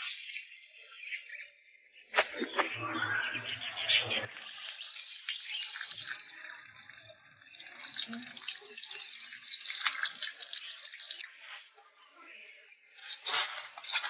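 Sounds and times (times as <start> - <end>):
tap water running into sink: 5.3 - 11.2
water splashing while rinsing: 5.9 - 11.2, 13.2 - 14.0.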